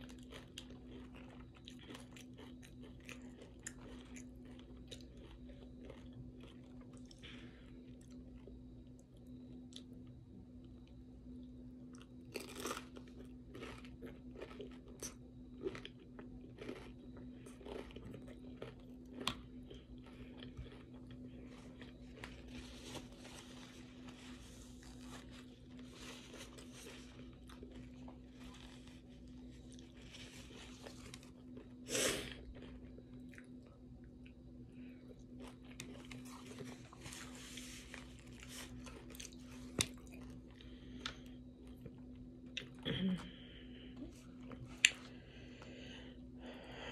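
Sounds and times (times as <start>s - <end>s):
person crunching chips: 0.0s - 7.4s, 11.9s - 33.5s, 35.2s - 41.8s
steady low hum: 0.0s - 46.9s.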